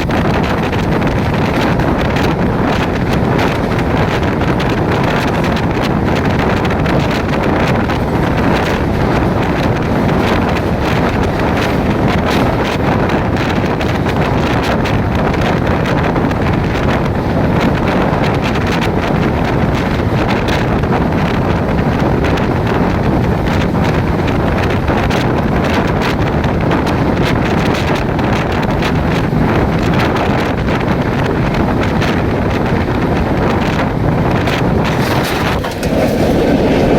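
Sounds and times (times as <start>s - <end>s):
moving train rumble: 0.0s - 36.9s
wind on microphone: 0.0s - 36.9s.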